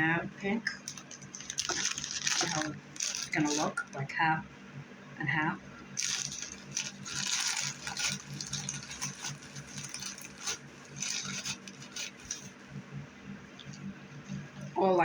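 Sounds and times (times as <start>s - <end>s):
basket grass rustling: 0.9s - 3.8s, 6.0s - 12.7s.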